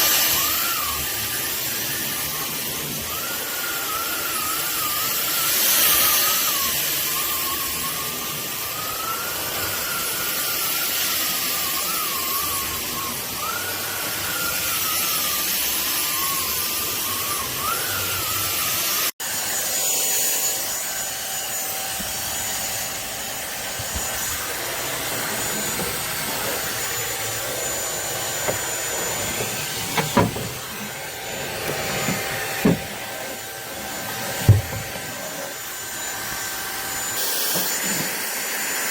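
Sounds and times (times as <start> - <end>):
vacuum cleaner motor whining: 0.0 - 38.9
knocks: 28.4 - 30.7, 31.6 - 33.0, 34.4 - 35.0.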